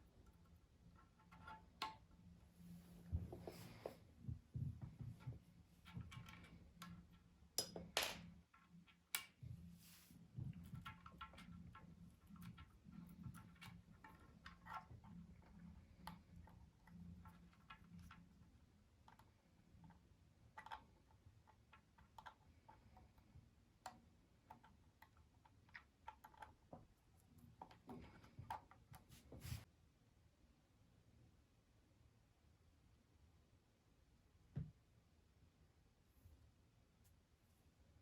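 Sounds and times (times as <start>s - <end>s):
faint clicks and light taps: 3.0s - 29.7s.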